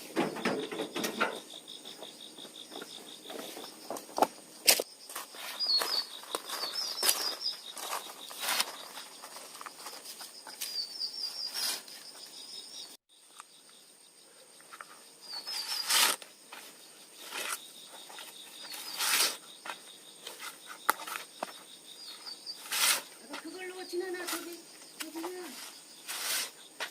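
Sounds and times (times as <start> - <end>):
high insect drone: 0.0 - 26.9
rustling: 3.2 - 12.2.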